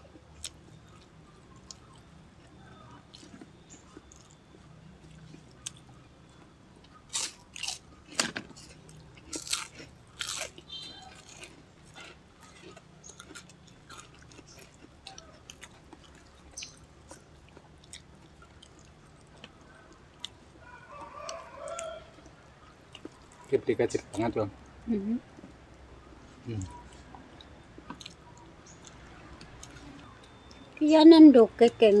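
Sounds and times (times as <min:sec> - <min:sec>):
chewing and crunching food: 0:00.0 - 0:30.9.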